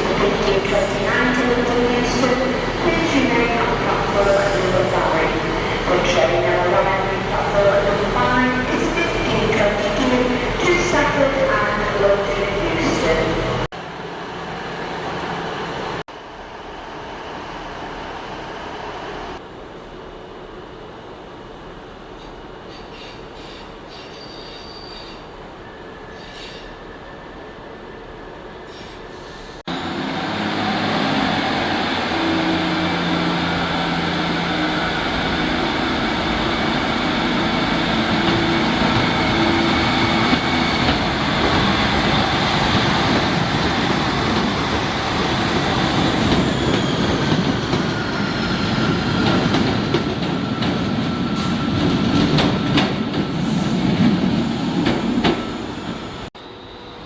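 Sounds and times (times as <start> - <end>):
train motor and wheel noise: 0.0 - 57.0
rail clicks: 36.6 - 56.0.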